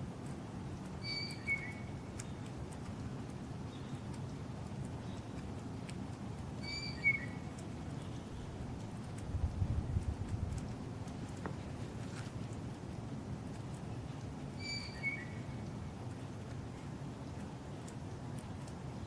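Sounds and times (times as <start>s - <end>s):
high whistled bird-like call: 1.0s - 1.9s, 6.6s - 7.4s, 14.6s - 15.4s
steady low rumble: 7.4s - 14.6s.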